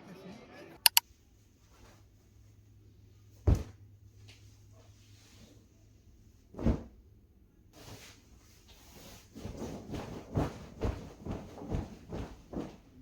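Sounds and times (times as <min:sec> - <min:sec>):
bedding rustling: 0:04.7 - 0:07.0, 0:07.8 - 0:13.0
bedding swishes: 0:07.8 - 0:13.0.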